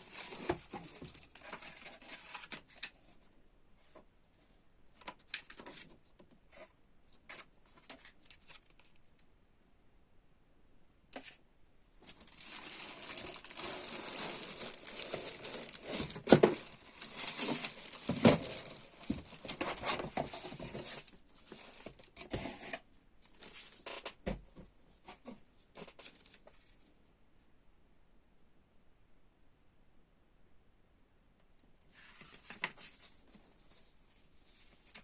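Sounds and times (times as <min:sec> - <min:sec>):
packaging crinkling and tearing: 0:00.0 - 0:02.7, 0:12.0 - 0:20.8.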